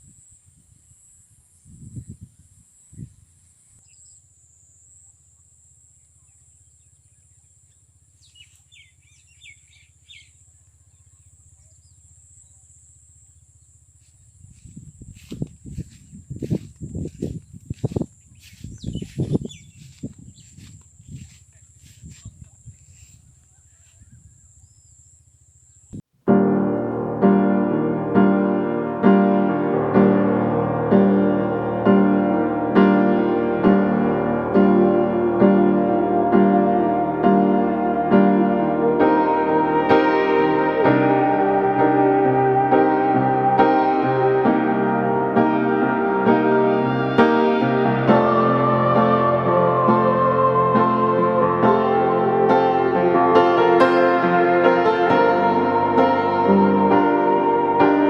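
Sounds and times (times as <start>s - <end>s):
small bird chirping: 15.8s - 21.4s
faint low noise: 26.2s - 58.0s
slow piano chords: 26.2s - 58.0s
high-pitched drone: 26.3s - 58.0s
low hum: 26.3s - 58.0s
thin steady high tone: 26.3s - 58.0s.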